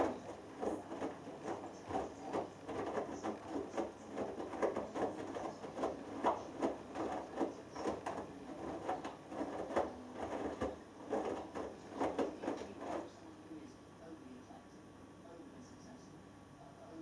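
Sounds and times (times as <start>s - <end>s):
washing machine drum tumbling laundry: 0.0s - 13.3s.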